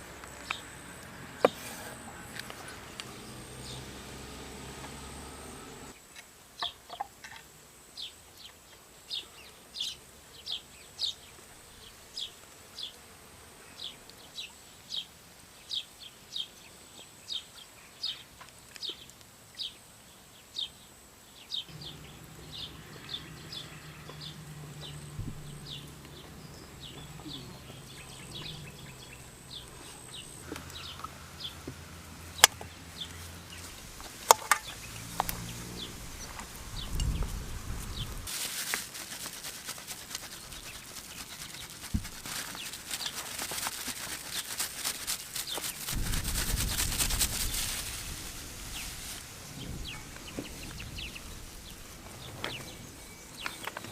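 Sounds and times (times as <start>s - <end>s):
bird chirping: 13.7s - 31.7s, 48.4s - 53.9s.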